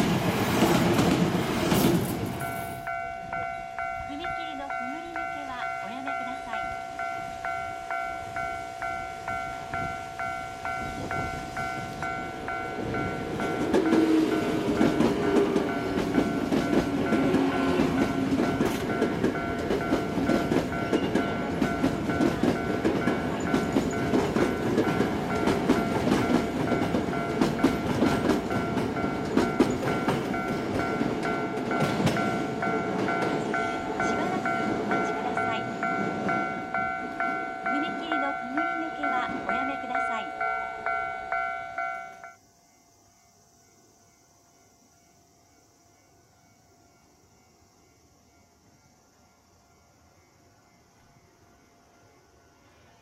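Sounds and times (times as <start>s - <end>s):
wheels clacking over rail joints: 0.0s - 3.0s, 10.8s - 41.5s
electric train passing: 0.0s - 53.0s
two-tone crossing bell ringing: 2.4s - 42.4s.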